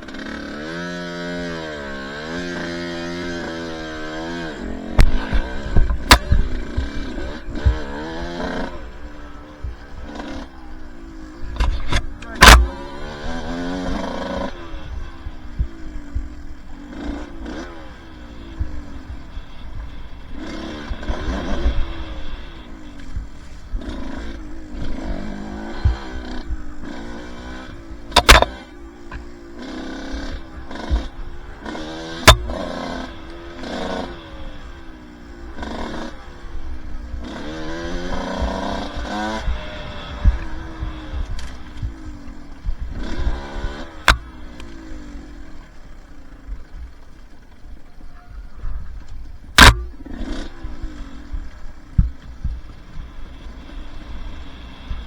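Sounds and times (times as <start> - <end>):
dirt bike engine revving: 0.0 - 55.0
sharp knocks: 28.1 - 29.2, 32.2 - 32.7, 44.0 - 44.3, 49.6 - 50.1.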